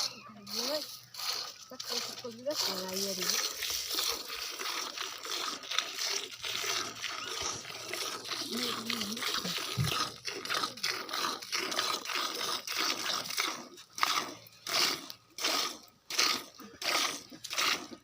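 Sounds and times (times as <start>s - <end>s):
milk squirting into a pail: 0.0s - 18.0s.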